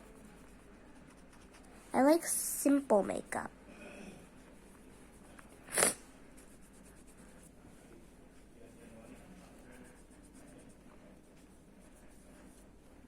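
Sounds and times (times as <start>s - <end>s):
pen scratching on paper: 0.0s - 1.7s, 4.4s - 7.6s, 9.1s - 12.8s.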